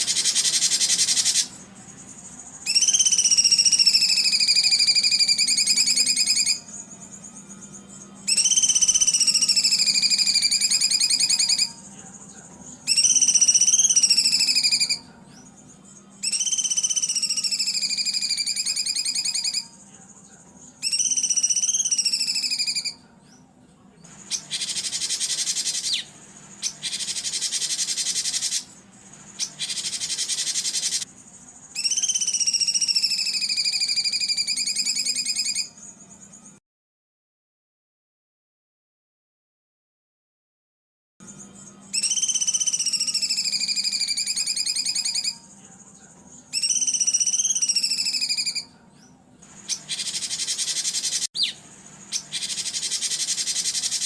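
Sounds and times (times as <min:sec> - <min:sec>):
buzzy bird calls: 0:00.0 - 0:15.6, 0:24.1 - 0:35.8, 0:49.4 - 0:54.0.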